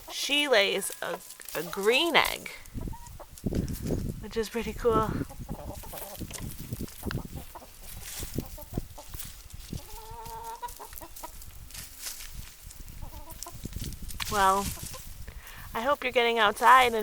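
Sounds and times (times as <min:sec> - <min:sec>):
hens clucking: 0:00.0 - 0:11.5, 0:12.9 - 0:13.7, 0:14.4 - 0:15.1.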